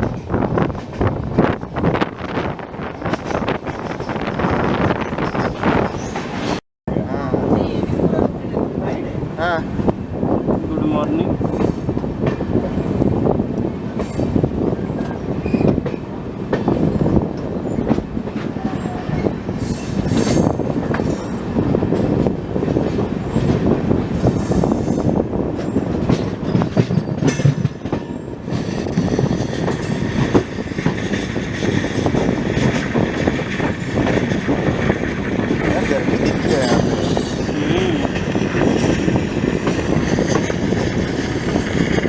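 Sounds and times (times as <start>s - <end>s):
train wheels rumbling on rail: 0.0s - 42.0s
high wheel squeals: 15.4s - 15.8s.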